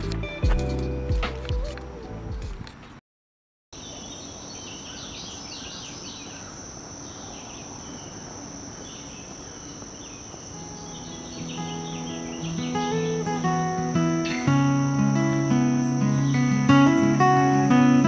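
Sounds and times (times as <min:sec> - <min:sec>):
gentle music: 0:00.0 - 0:02.6, 0:10.6 - 0:18.0
bird chirps: 0:03.8 - 0:14.5
high-pitched insect trill: 0:04.2 - 0:18.0.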